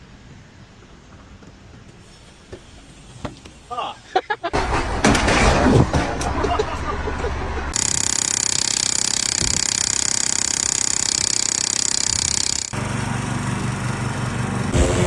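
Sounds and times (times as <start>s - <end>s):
power tool pulsing: 7.7s - 15.0s.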